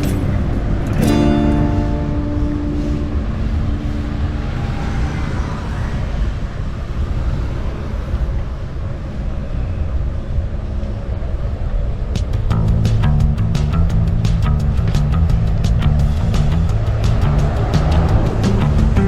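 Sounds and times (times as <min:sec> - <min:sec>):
background music sustained notes: 0:00.0 - 0:05.7, 0:12.5 - 0:19.0
wind and road rumble: 0:00.0 - 0:19.0.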